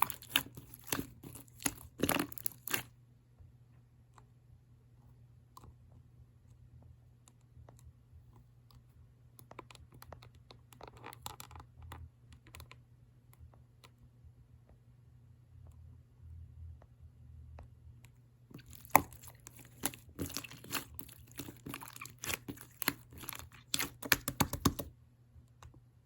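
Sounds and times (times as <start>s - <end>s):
low steady hum: 0.0s - 26.0s
faint clicks and taps: 5.4s - 14.8s, 16.7s - 25.9s.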